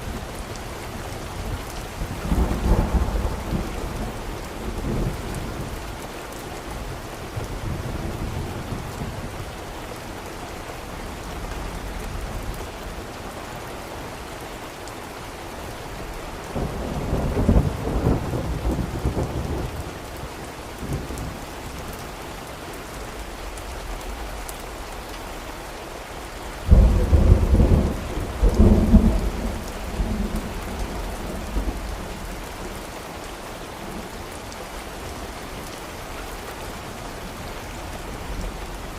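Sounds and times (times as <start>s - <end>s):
steady rain: 0.0s - 38.9s
rolling thunder: 26.7s - 32.3s.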